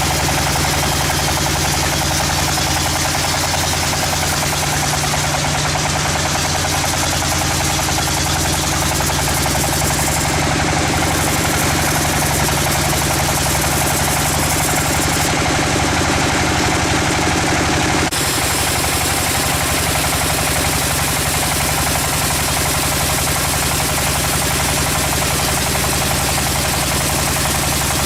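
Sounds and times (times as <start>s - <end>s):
sawmill machinery drone: 0.0s - 28.0s
loud even hiss: 18.1s - 22.2s.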